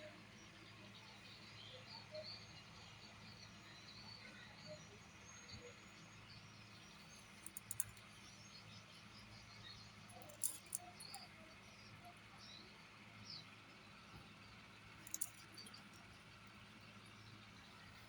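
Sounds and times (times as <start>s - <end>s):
small bird chirps: 0.9s - 13.6s, 15.0s - 16.4s
low steady hum: 6.2s - 18.0s.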